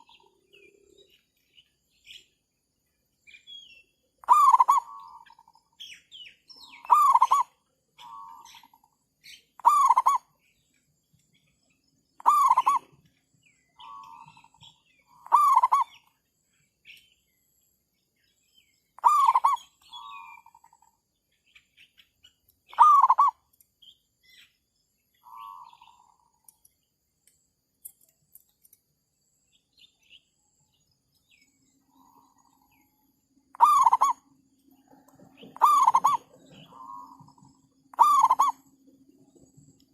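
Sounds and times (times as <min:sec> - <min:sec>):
dove cooing: 0:04.2 - 0:05.5, 0:06.8 - 0:08.7, 0:09.6 - 0:10.3, 0:12.2 - 0:13.0, 0:13.8 - 0:16.0, 0:19.0 - 0:20.7, 0:22.7 - 0:23.4, 0:33.5 - 0:34.2, 0:34.8 - 0:38.9.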